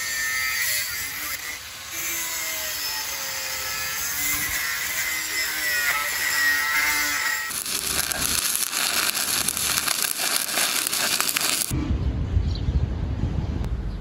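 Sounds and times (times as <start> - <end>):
welding arc crackling: 4.5 - 11.7.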